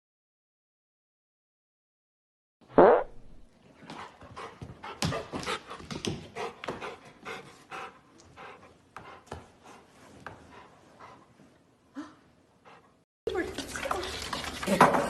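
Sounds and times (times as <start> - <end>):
pet animal breathy panting: 3.9 - 11.6, 12.6 - 13.0.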